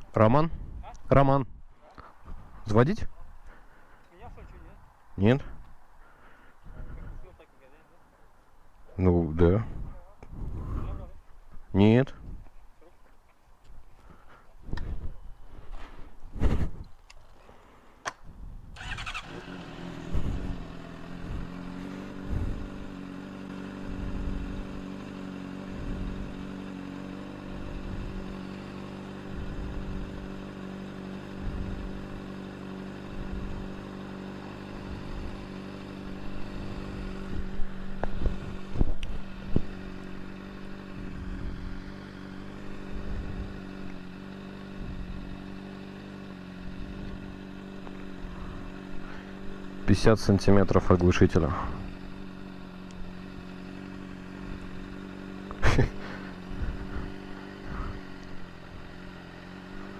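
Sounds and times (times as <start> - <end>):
motorcycle engine idling: 18.6 - 59.9.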